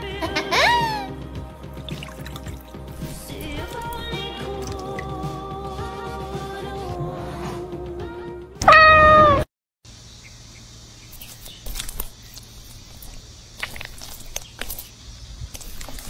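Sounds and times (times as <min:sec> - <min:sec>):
background music: 0:00.0 - 0:08.7
cat meowing: 0:08.6 - 0:09.5.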